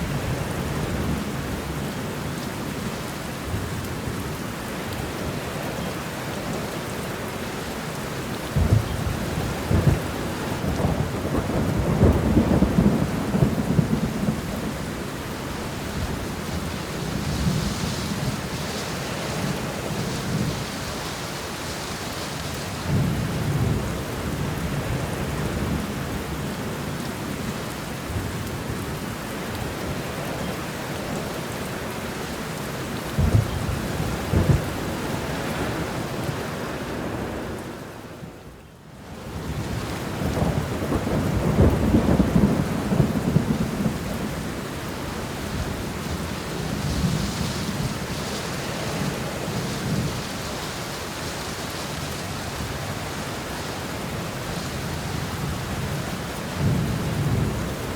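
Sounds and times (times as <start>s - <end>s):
steady rainfall: 0.0s - 57.9s
rolling thunder: 8.5s - 20.8s, 33.1s - 36.4s, 39.4s - 50.4s, 54.8s - 57.9s.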